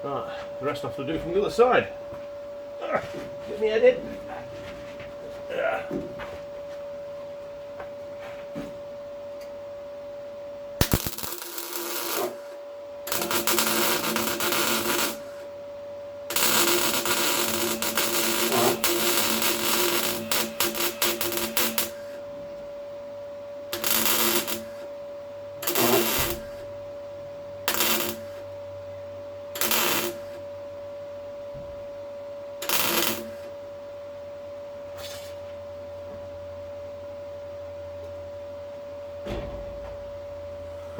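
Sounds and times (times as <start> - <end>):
steady hum: 0.0 - 40.9
welder arc crackling: 10.8 - 15.4, 16.3 - 22.1, 23.7 - 24.9, 25.6 - 26.6, 27.6 - 28.4, 29.6 - 30.4, 32.6 - 33.5.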